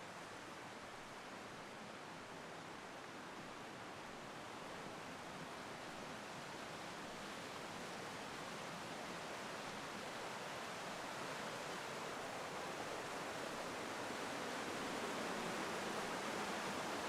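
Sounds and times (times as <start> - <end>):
stream and waterfalls rushing: 0.0 - 17.0.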